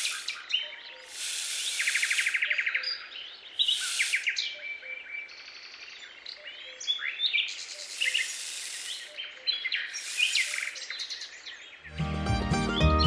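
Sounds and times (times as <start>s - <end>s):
faint hiss: 0.0s - 0.4s, 1.0s - 2.5s, 3.6s - 4.5s, 7.6s - 11.3s
high hissing: 0.0s - 0.4s, 1.0s - 2.5s, 3.6s - 4.4s, 7.7s - 9.2s, 9.8s - 11.1s
birds chirping: 0.0s - 13.0s.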